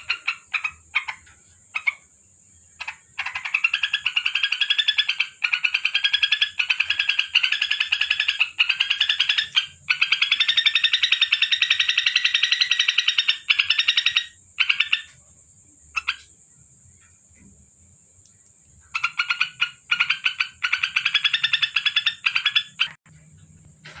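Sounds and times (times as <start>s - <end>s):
bird rattling chatter song: 0.0s - 2.1s, 2.8s - 15.1s, 19.0s - 23.1s.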